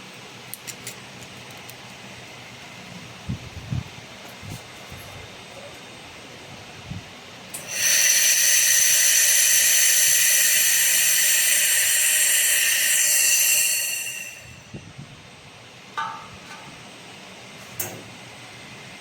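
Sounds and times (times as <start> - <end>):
laser machine hissing and whining: 7.6 - 14.9.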